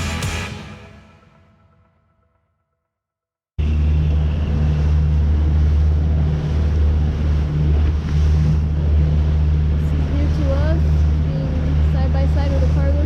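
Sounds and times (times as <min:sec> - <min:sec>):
boat motor humming: 0:03.6 - 0:13.0
water noise: 0:03.6 - 0:13.0
wind: 0:03.6 - 0:13.0.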